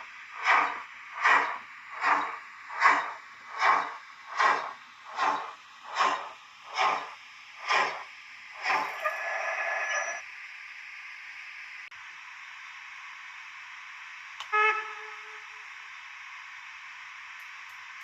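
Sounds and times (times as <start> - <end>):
steam hiss: 0.0 - 10.2
steam locomotive chuffs: 0.0 - 11.6, 13.2 - 18.0.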